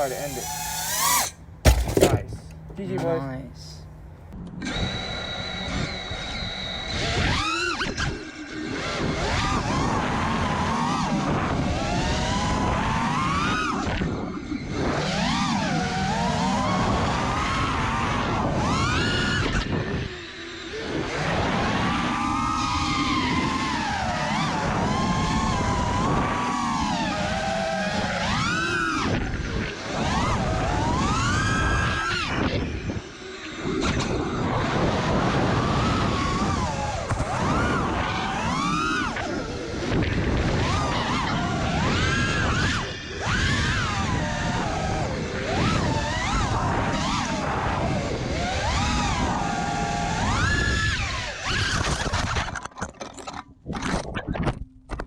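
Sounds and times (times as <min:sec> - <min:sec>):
quadcopter motors whining: 0:00.0 - 0:03.8, 0:04.5 - 0:52.5
wind rush on microphone: 0:04.6 - 0:52.6.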